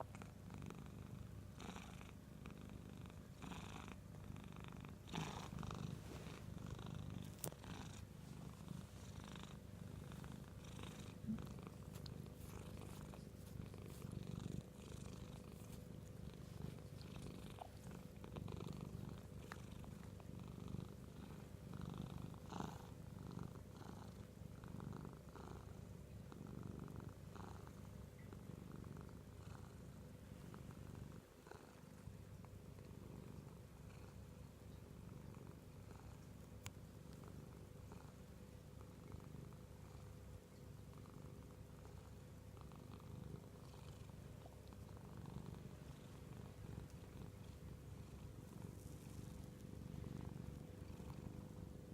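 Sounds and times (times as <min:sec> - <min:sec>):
cat purring: 0:00.0 - 0:51.9.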